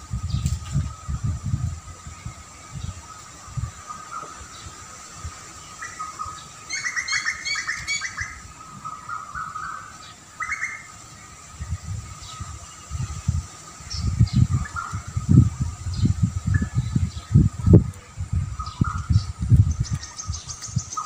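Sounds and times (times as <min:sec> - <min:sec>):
songbirds chirping: 0:00.0 - 0:21.0
low rumbling bumps: 0:14.0 - 0:21.0.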